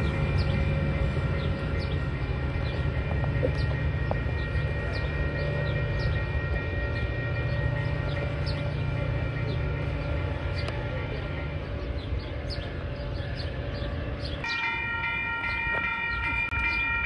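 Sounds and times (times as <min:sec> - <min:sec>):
steady tones: 0:00.0 - 0:16.7
diesel train rumbling: 0:00.0 - 0:17.0.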